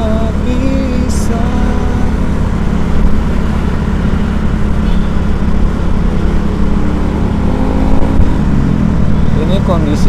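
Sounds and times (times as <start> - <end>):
cars and motorcycles passing: 0.0 - 10.0.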